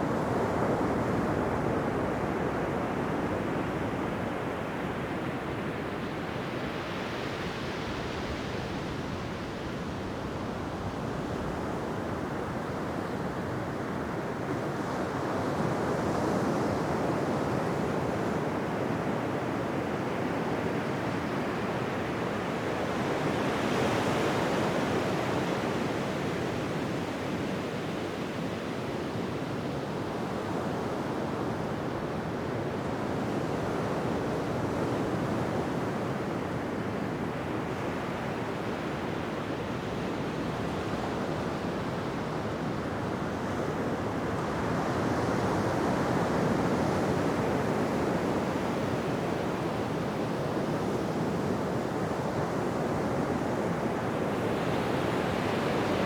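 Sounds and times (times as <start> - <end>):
ocean waves breaking on beach: 36.1 - 56.0.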